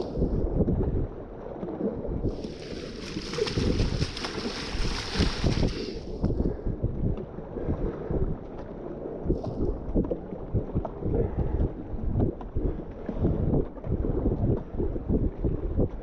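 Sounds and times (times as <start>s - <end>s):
wind buffeting the microphone: 0.0s - 16.0s
whitewater river rumble: 2.4s - 6.1s.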